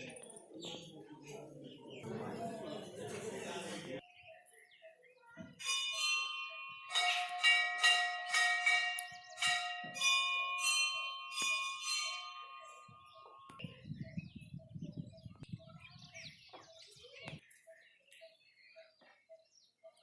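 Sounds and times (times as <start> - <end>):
bells ringing: 5.4 - 14.4.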